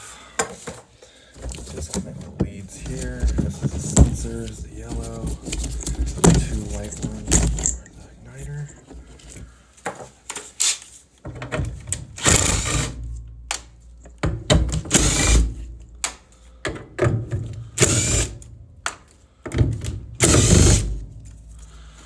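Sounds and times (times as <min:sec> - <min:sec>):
cordless drill backing out screws: 0:12.1 - 0:13.0, 0:14.8 - 0:15.5, 0:17.8 - 0:18.3, 0:20.2 - 0:21.0.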